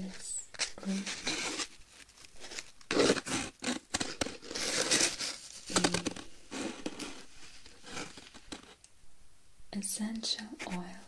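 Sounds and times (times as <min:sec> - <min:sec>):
objects crinkling and rustling: 0:00.0 - 0:08.8.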